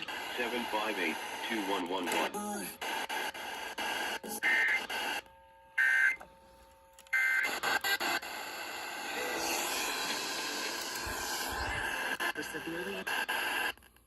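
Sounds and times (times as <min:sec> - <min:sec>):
radio hiss: 0:00.0 - 0:05.2, 0:07.2 - 0:14.0
radio crackle: 0:00.0 - 0:06.2, 0:07.0 - 0:14.0
two-tone data warble bursts: 0:07.2 - 0:12.2.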